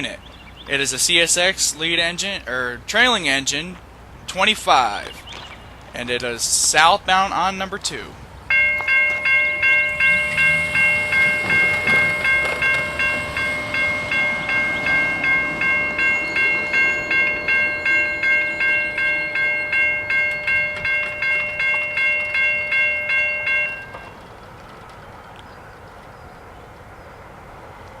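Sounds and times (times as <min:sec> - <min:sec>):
crossing bell ringing: 0:00.0 - 0:00.2, 0:06.8 - 0:24.6
train wheels clicking over rail joints: 0:00.0 - 0:28.0.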